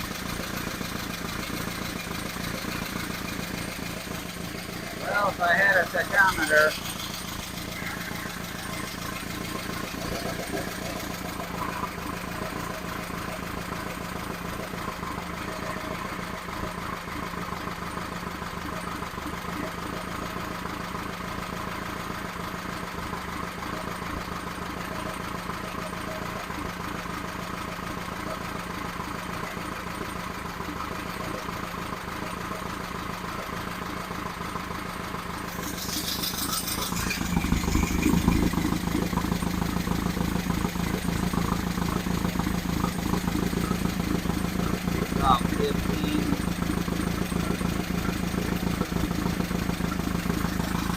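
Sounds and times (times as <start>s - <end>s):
engine running steadily: 0.0s - 50.9s.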